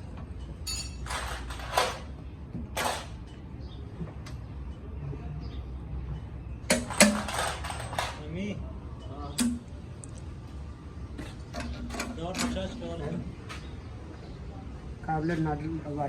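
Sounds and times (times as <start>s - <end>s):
metal parts and tools clinking: 0.4s - 2.1s, 6.7s - 8.3s, 11.5s - 12.8s.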